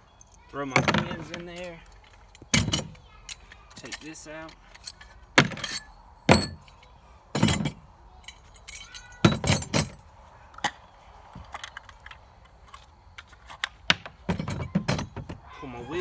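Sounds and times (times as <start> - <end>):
metal parts clanking: 0.2 - 10.0.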